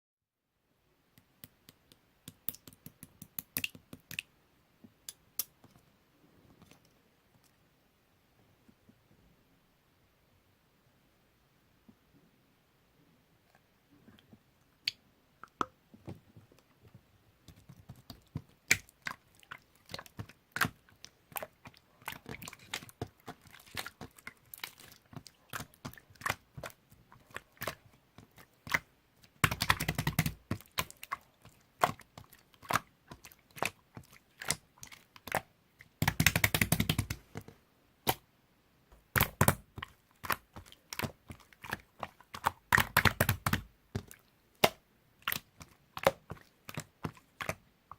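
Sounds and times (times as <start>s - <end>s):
slime squished by hand: 17.4s - 37.4s, 39.0s - 47.6s.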